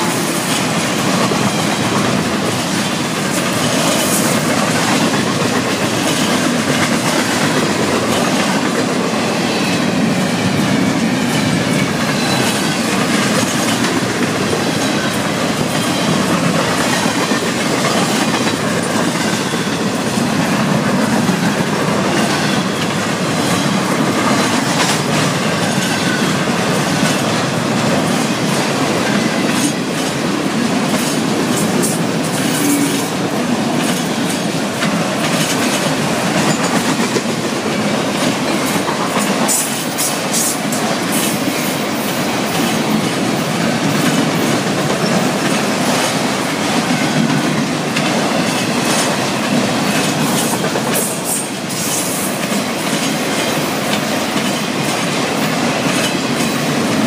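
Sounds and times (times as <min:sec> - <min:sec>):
steel wheels rumbling on rail: 0:00.0 - 0:57.0
wheels clacking over rail joints: 0:00.0 - 0:57.0.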